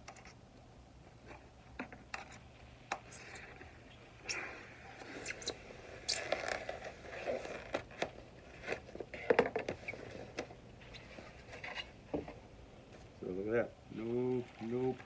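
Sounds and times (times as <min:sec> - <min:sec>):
cardboard and foam packaging handled: 0:06.3 - 0:13.2.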